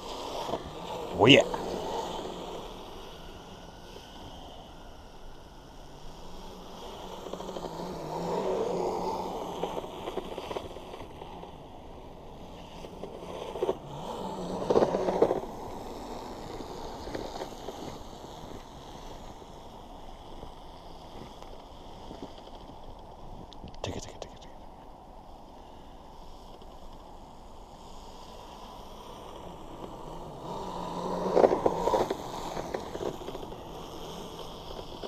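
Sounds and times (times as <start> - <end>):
electric motors and tracks on snow: 0.0 - 35.0.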